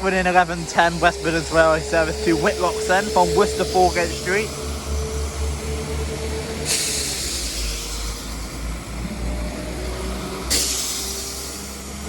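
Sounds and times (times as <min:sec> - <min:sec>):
diesel train engine rumbling: 0:00.0 - 0:12.0
air hiss: 0:02.1 - 0:08.9, 0:10.5 - 0:12.0.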